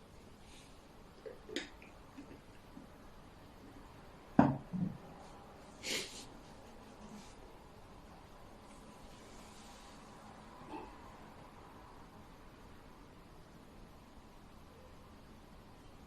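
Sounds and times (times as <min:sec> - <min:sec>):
person sniffing: 0:05.8 - 0:06.3.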